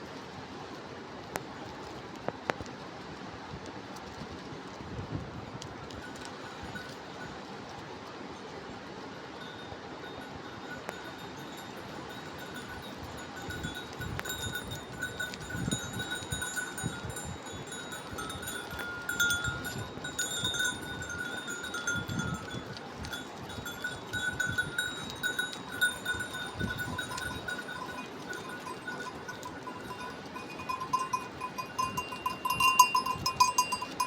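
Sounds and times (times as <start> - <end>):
sheep bells clinking: 5.8 - 7.6, 9.1 - 34.0.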